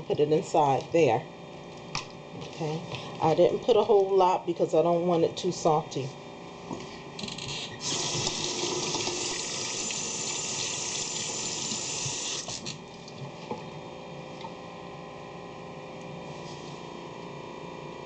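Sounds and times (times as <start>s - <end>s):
tap water running into sink: 7.9s - 12.6s.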